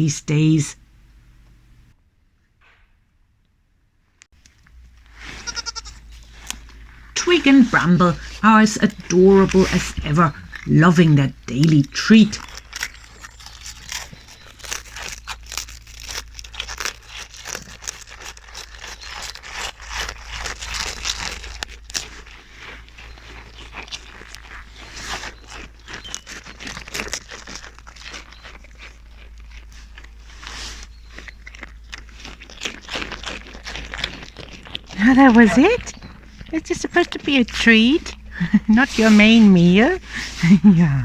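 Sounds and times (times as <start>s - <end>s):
animals crunching and chewing: 4.4s - 41.0s.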